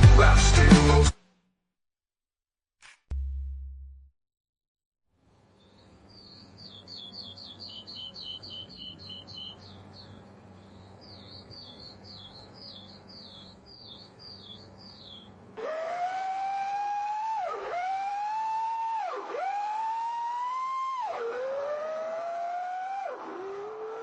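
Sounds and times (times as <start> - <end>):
faint steady hum: 5.2 - 15.6
songbird chirping: 5.5 - 15.4.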